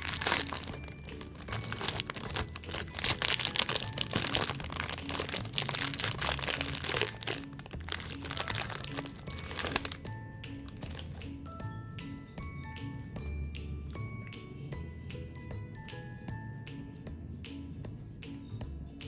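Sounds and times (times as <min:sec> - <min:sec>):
snack packaging crinkling: 0:00.0 - 0:11.2
background music: 0:00.0 - 0:19.0.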